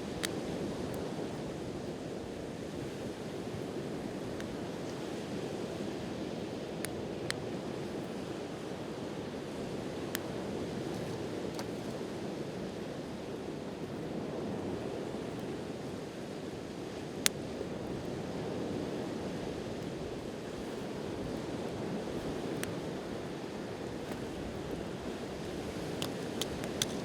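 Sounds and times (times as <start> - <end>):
campfire wood popping: 24.0 - 27.0.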